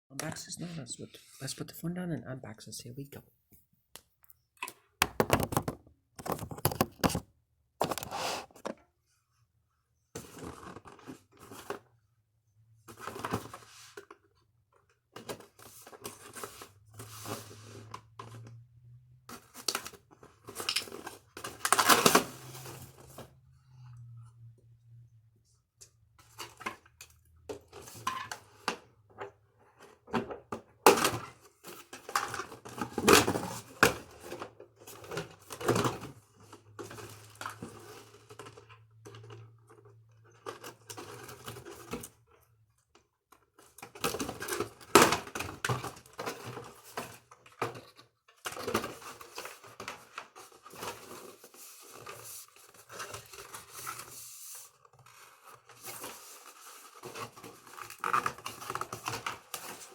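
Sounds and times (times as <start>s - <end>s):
packaging tearing and rustling: 20.9s - 22.6s.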